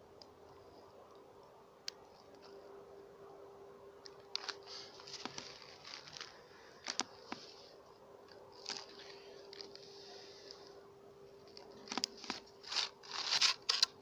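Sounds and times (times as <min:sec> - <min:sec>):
steady low hum: 0:00.0 - 0:14.0
crackling and clicking: 0:04.0 - 0:07.5, 0:11.4 - 0:14.0.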